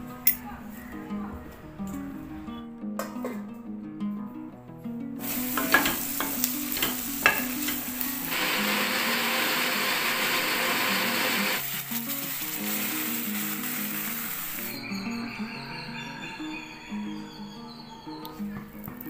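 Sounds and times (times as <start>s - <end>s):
food sizzling in a pan: 5.2s - 17.3s.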